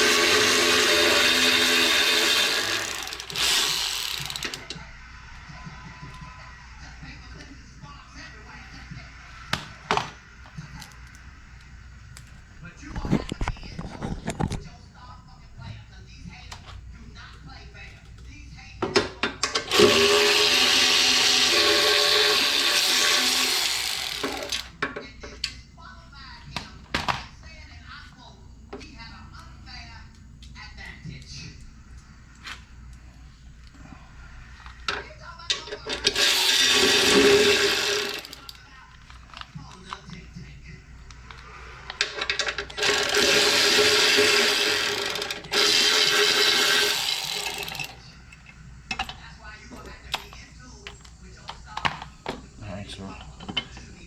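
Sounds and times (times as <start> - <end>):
power tool motor running: 0.0 - 4.7, 19.7 - 24.7, 36.0 - 38.5, 42.7 - 47.9.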